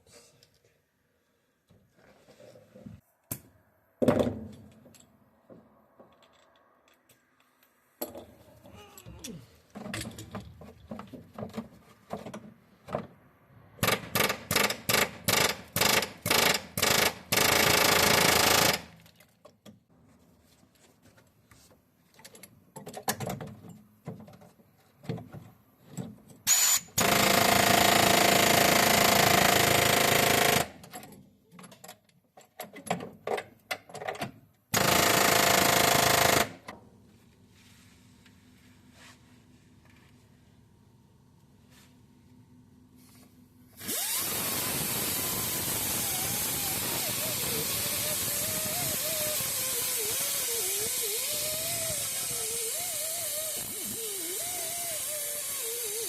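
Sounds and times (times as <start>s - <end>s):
pneumatic air tool cutting steel: 26.4s - 30.7s, 34.8s - 36.6s, 43.8s - 56.0s.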